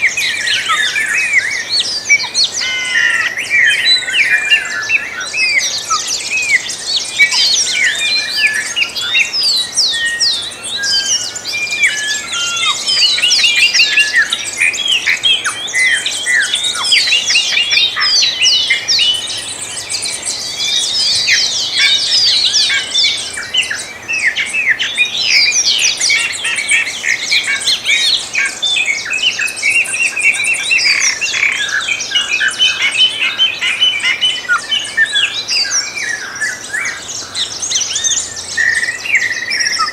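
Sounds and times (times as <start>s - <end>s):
songbirds chorus chirping: 0.0s - 39.9s.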